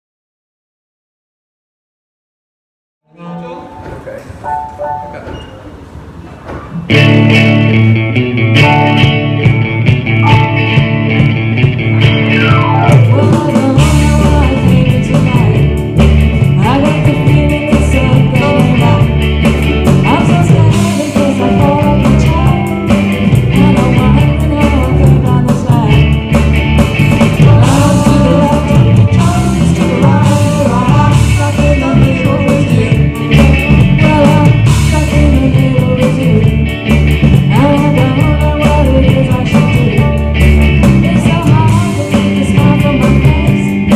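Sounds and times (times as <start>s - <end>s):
electric guitar: 3.7s - 43.9s
heavy bass: 5.1s - 43.9s
live rock band playing: 6.7s - 43.9s
person singing: 12.8s - 15.8s, 20.0s - 22.9s, 27.4s - 36.6s, 37.5s - 43.9s.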